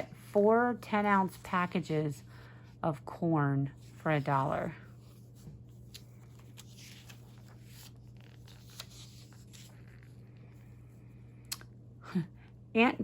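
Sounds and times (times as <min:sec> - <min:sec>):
steady low hum: 0:00.0 - 0:13.0
paper pages rustling: 0:03.8 - 0:10.7.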